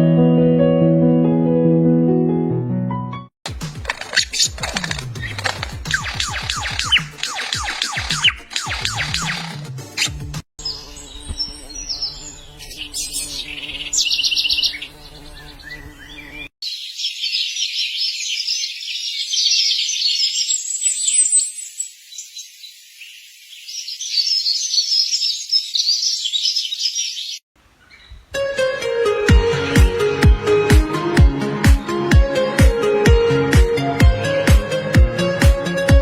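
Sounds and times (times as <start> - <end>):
birds chirping: 4.2 - 10.0, 10.6 - 28.3.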